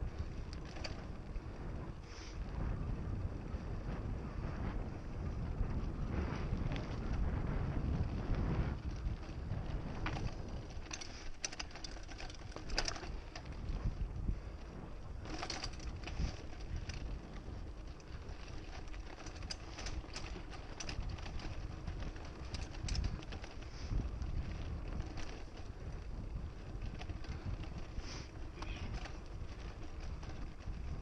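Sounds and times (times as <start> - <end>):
bike clicks and rattles: 0.0 - 31.0
wind on microphone: 0.0 - 31.0
tyres on dirt: 7.8 - 31.0.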